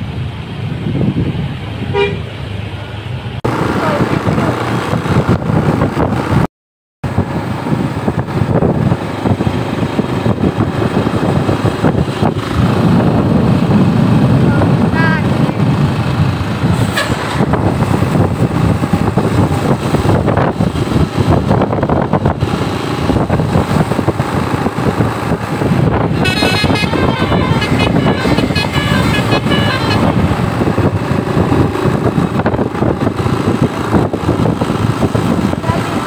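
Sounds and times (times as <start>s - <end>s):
road and engine noise: 0.0s - 36.0s
melodic bus horn: 1.9s - 2.3s, 26.1s - 30.5s.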